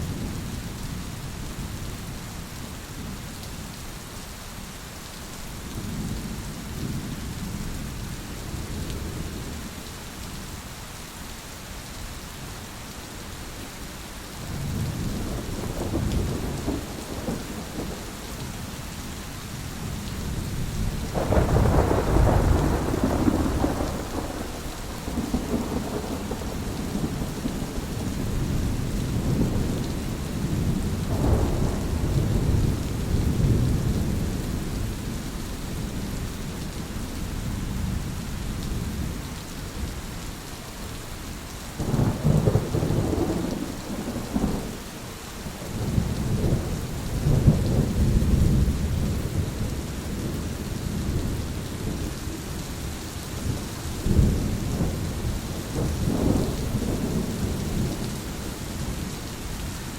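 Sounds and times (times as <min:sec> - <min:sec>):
steady rain: 0:00.0 - 0:59.9
thunder rolling: 0:21.1 - 0:29.8, 0:53.4 - 0:58.0.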